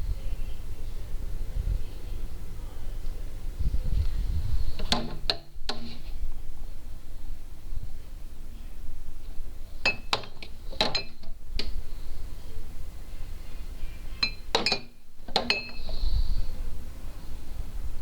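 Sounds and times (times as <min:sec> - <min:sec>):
glass bottles clinking: 0:14.2 - 0:16.0.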